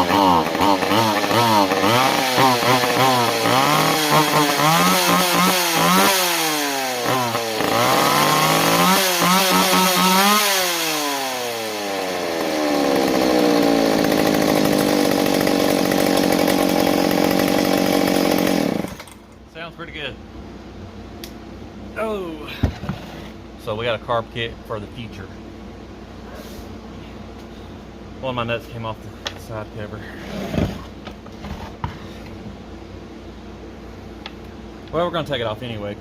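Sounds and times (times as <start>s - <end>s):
chainsaw engine revving: 0.0s - 19.3s.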